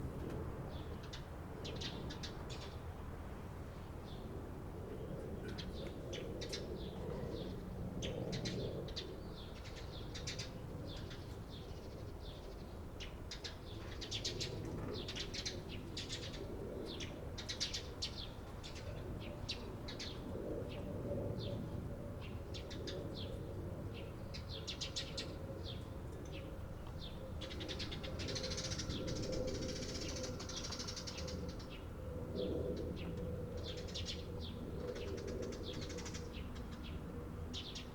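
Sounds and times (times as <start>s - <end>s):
sparrows chirping: 24.0s - 31.8s.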